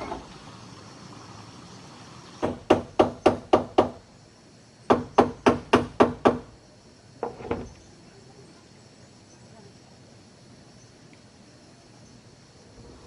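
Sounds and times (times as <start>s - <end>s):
rapid hard knocks: 2.4s - 4.0s, 4.9s - 6.5s.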